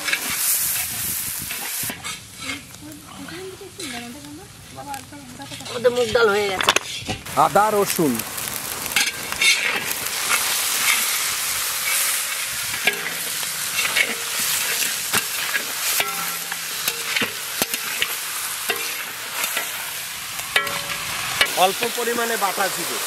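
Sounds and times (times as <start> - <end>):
metal spatula scraping pan: 0.0 - 4.2, 5.4 - 7.3, 9.0 - 11.2, 11.8 - 21.7
chicken sizzling in hot oil: 0.0 - 23.0.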